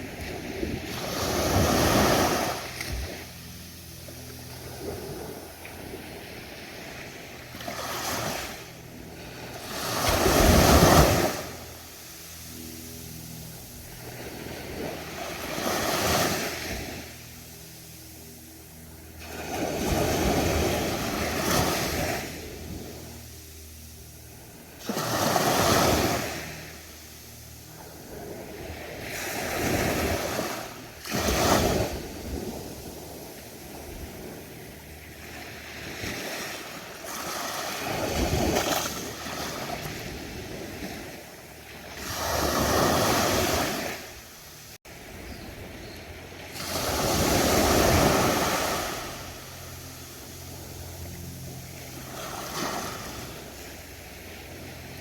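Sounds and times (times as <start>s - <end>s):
ocean surf breaking: 9.2s - 11.9s, 46.4s - 50.6s.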